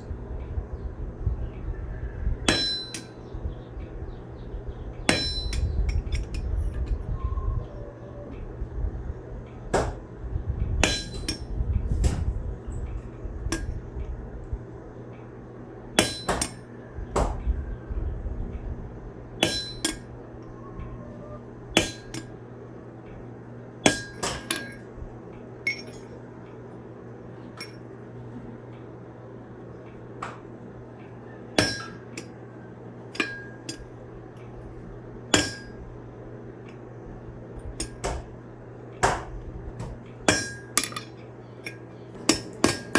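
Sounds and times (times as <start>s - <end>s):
steady low hum: 0.0s - 42.9s
hammer striking steel on anvil: 2.5s - 3.2s, 5.1s - 6.4s, 10.8s - 11.5s, 13.5s - 13.8s, 16.0s - 17.4s, 19.4s - 20.1s, 21.8s - 22.4s, 23.8s - 24.8s, 25.6s - 26.1s, 31.6s - 32.4s, 33.1s - 33.9s, 35.3s - 36.0s, 37.8s - 38.3s, 39.0s - 42.9s.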